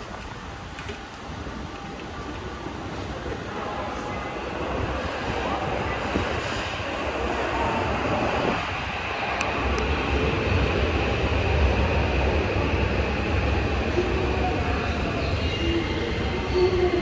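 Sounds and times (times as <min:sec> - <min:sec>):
subway train rail noise: 0:00.0 - 0:17.0.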